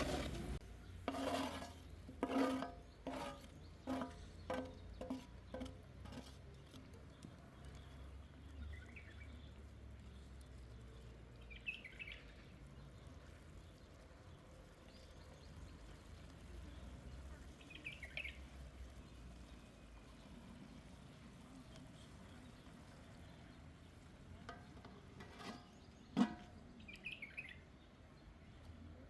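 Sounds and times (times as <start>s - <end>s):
bird chirping: 6.5s - 16.1s, 25.6s - 28.8s.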